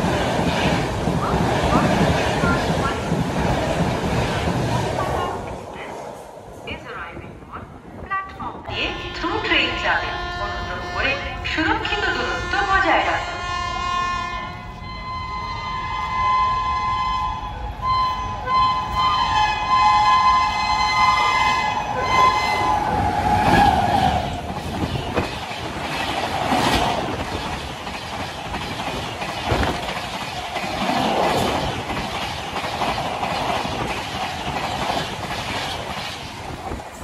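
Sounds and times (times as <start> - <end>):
train horn blast: 8.6 - 24.3
train wheels clattering: 18.8 - 37.0.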